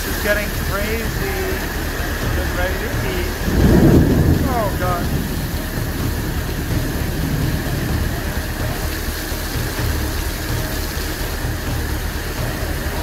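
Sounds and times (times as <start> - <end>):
heavy rain on pavement: 0.0 - 13.0
low rumble: 0.0 - 13.0.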